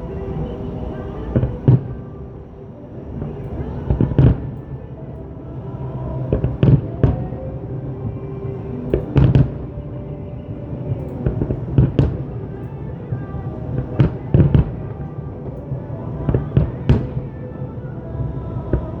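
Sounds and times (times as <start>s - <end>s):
music: 0.0s - 19.0s.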